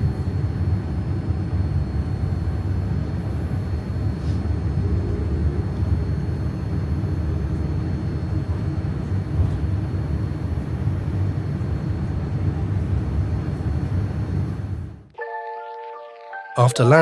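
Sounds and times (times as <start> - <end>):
airliner cabin rumble: 0.0 - 15.0
faint high steady tones: 15.2 - 17.0.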